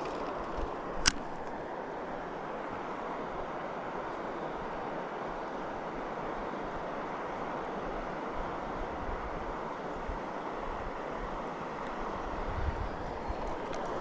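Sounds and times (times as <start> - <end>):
river water rushing: 0.0 - 14.0
wind on microphone: 12.0 - 14.0.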